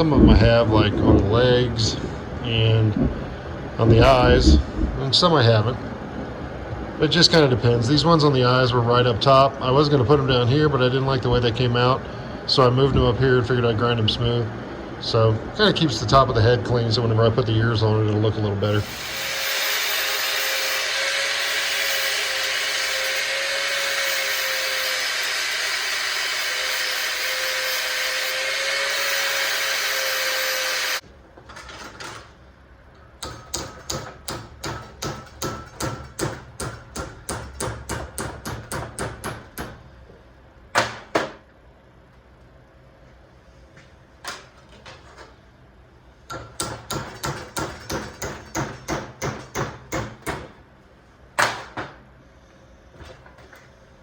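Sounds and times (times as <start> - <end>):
angle grinder grinding steel: 18.7 - 31.0
hammer striking metal: 33.2 - 39.8, 46.3 - 50.5.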